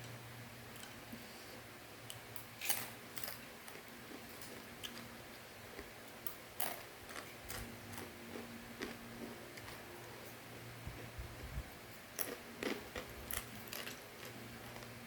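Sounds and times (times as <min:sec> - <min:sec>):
faint low hum: 0:00.0 - 0:15.0
crunchy snack being chewed: 0:02.6 - 0:09.8, 0:12.2 - 0:15.0.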